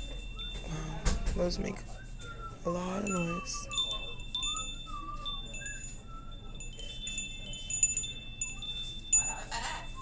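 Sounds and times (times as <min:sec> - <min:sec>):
metal wind chimes ringing: 0:00.0 - 0:10.0.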